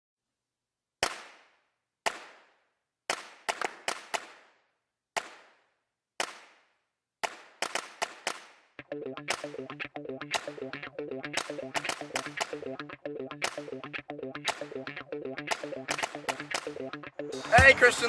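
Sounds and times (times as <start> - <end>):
musical notes: 8.8 - 18.0.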